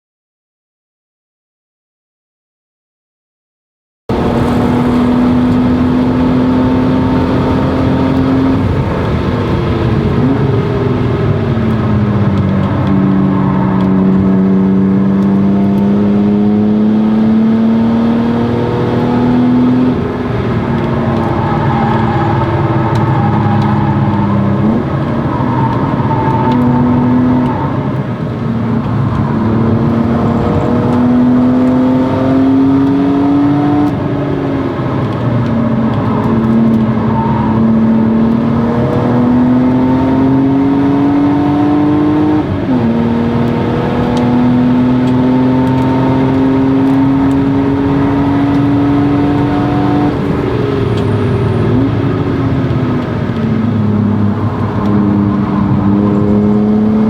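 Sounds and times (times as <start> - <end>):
car engine revving: 4.1 - 57.0.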